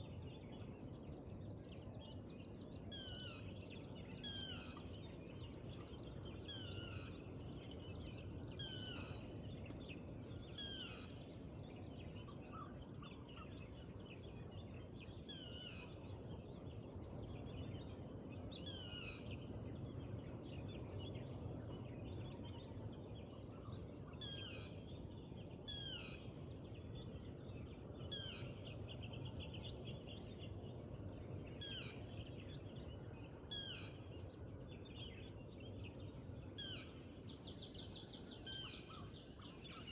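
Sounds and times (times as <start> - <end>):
birds calling: 6.4 - 9.8, 10.5 - 11.0.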